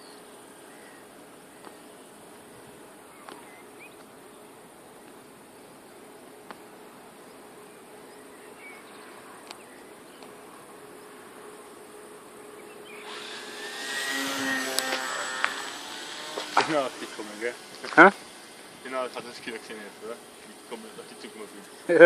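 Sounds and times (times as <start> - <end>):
model plane buzzing in flight: 12.8 - 18.6.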